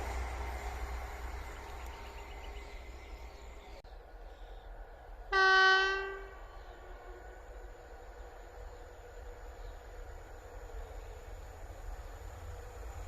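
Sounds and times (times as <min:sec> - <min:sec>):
passing train: 0:00.0 - 0:13.0
train horn blast: 0:05.3 - 0:07.4.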